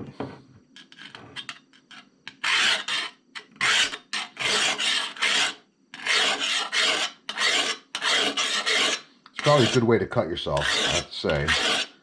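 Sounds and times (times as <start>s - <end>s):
diamond hone rasping on blade: 2.3s - 9.9s, 10.6s - 11.9s.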